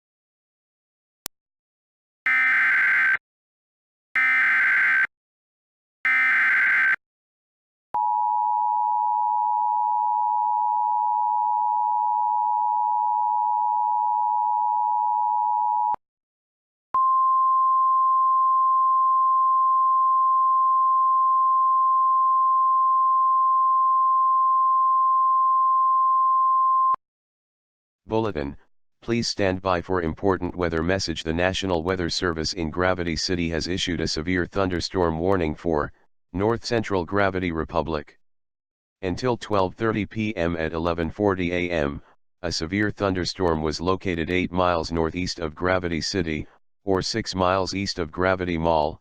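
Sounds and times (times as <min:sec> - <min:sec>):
buzzing data bursts: 0:02.3 - 0:03.2, 0:04.2 - 0:05.1, 0:06.1 - 0:07.0
steady warning alarm tone: 0:02.3 - 0:03.2, 0:04.2 - 0:05.1, 0:06.1 - 0:07.0
two-tone attention signal: 0:06.1 - 0:07.0.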